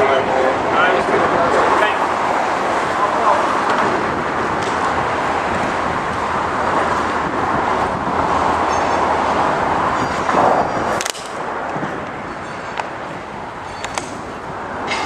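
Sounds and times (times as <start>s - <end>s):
freight train passing: 0.0s - 15.0s.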